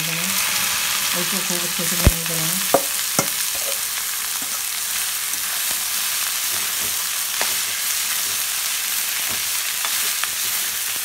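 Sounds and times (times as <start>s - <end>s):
vegetables sizzling in hot oil: 0.0s - 11.0s
steel spoon scraping a pan: 2.8s - 4.7s.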